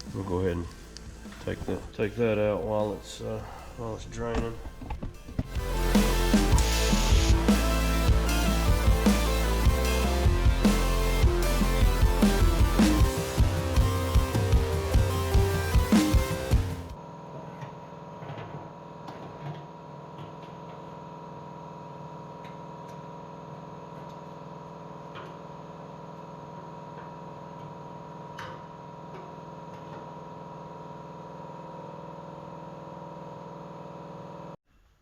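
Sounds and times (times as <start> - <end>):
background music: 0.0 - 17.0
siphon pump humming: 0.0 - 17.0.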